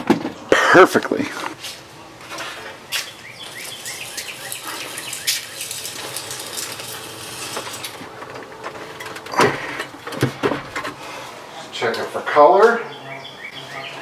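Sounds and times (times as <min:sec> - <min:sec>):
small birds chirping: 0:02.0 - 0:08.0, 0:12.7 - 0:14.0
handling clicks and knocks: 0:05.4 - 0:11.0.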